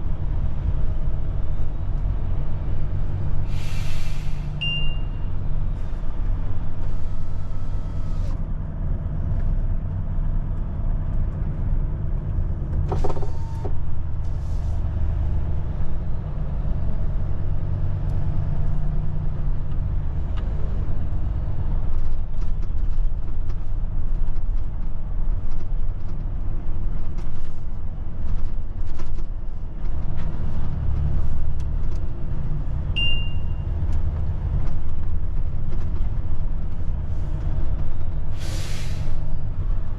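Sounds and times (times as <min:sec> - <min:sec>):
short high beep: 0:04.6 - 0:05.3, 0:33.0 - 0:33.6.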